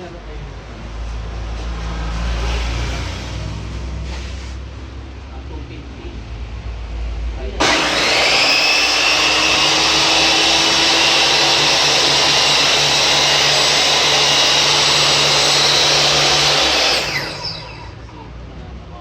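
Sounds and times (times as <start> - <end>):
table saw motor whine: 7.6 - 18.1.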